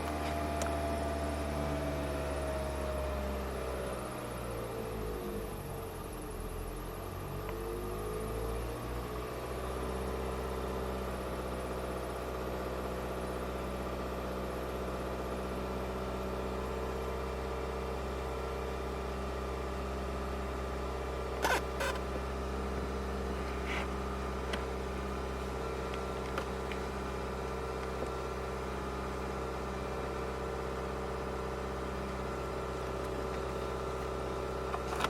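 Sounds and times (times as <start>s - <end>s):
car engine idling: 9.2s - 35.0s.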